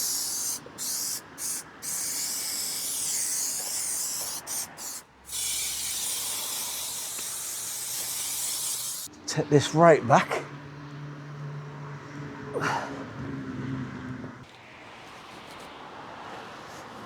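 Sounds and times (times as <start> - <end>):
spray adhesive hissing: 0.0 - 9.1.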